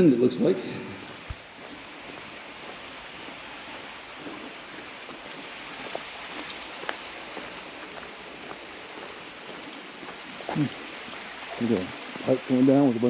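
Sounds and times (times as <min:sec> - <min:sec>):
water pouring from pipe: 0:04.5 - 0:13.0.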